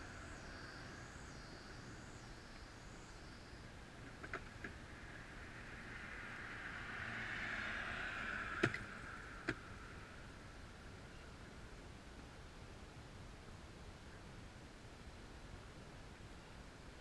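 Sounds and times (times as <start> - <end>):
vehicle passing by: 4.7 - 10.6.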